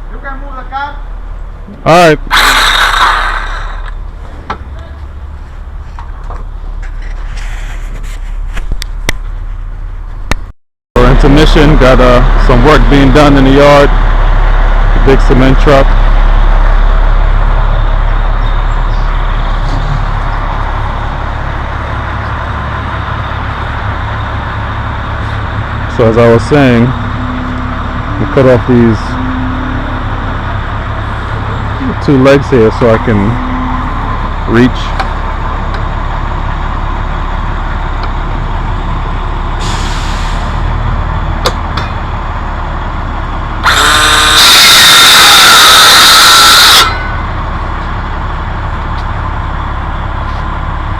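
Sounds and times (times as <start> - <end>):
power saw cutting: 2.3 - 4.0, 43.6 - 45.2
cement mixer truck diesel engine: 11.0 - 50.9.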